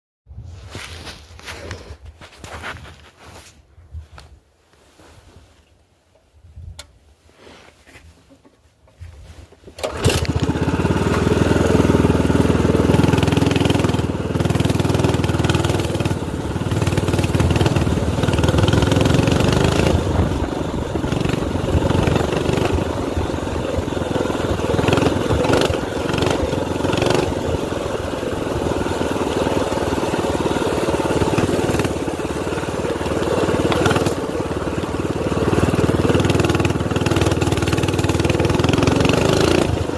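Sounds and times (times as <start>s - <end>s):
minibike engine running: 9.8s - 39.9s.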